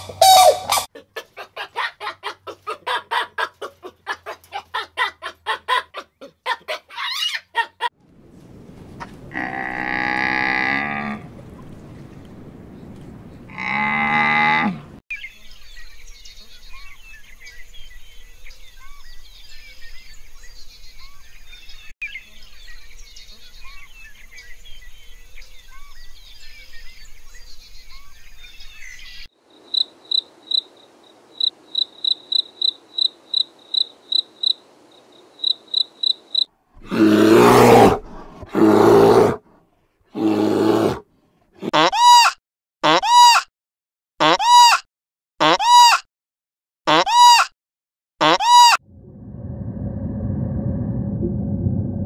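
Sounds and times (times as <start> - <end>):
loud animal calls: 0.0 - 0.9
loud low animal call: 0.0 - 0.9, 9.3 - 11.4, 13.5 - 15.0, 36.8 - 39.4.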